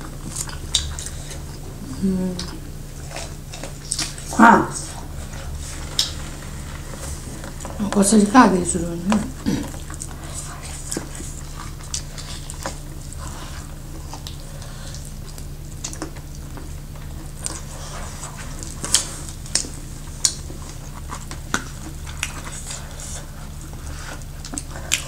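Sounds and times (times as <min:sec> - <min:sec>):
people chewing: 0:00.0 - 0:25.0
steady low hum: 0:00.0 - 0:25.0.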